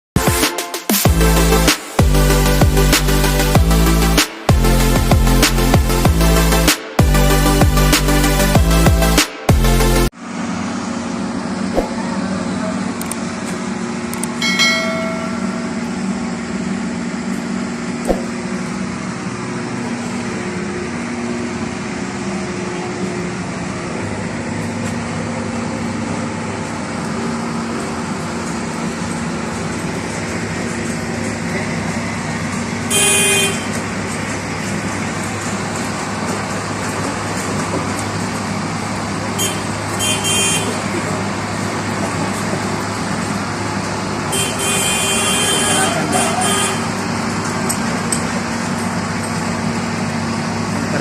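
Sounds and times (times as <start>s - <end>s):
traffic noise: 1.0s - 51.0s
vehicle horn: 32.9s - 33.8s, 39.3s - 40.9s, 44.3s - 47.0s.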